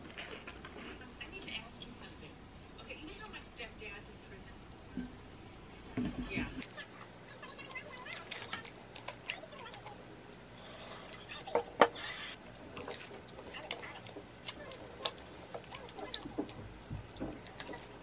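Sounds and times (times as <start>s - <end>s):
crunching and chewing toast: 7.5s - 10.0s, 10.9s - 18.0s.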